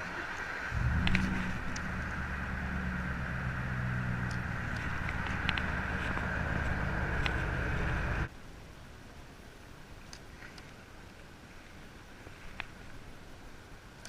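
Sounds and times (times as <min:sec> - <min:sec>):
faint clicks: 0:00.3 - 0:02.4, 0:04.1 - 0:07.9
truck engine idling: 0:00.7 - 0:08.3.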